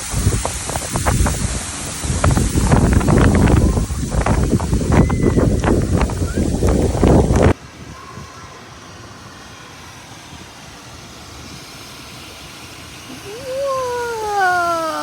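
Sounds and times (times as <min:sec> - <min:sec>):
rain hissing: 0:00.0 - 0:15.0
long drawn-out cry: 0:13.1 - 0:15.0.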